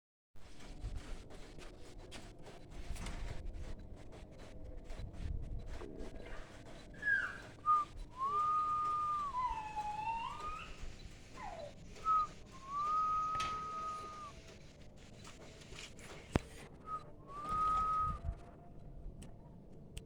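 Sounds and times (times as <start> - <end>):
clear whistled notes: 7.0 - 14.4, 16.8 - 18.4.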